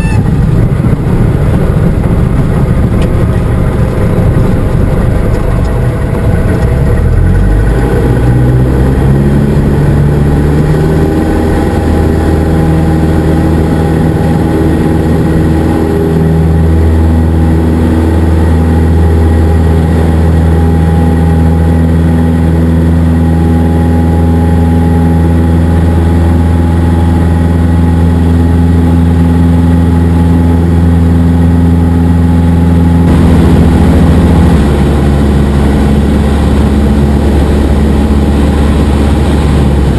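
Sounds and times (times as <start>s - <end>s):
airplane engine and propeller: 0.0s - 39.9s.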